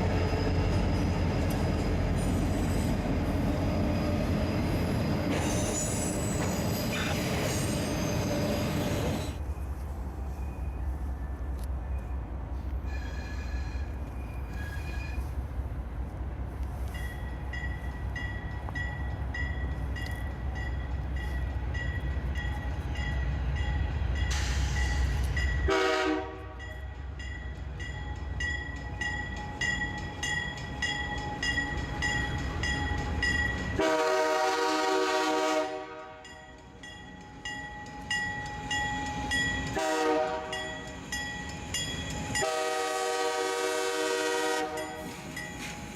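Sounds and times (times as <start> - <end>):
locomotive air horn blasts: 25.7 - 26.7, 33.8 - 36.2, 39.8 - 40.6, 42.4 - 44.9.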